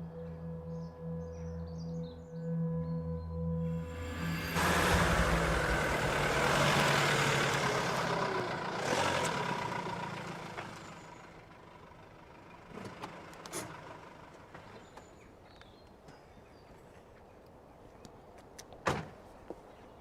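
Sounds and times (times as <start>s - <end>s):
vehicle engine and road noise: 3.7s - 16.3s.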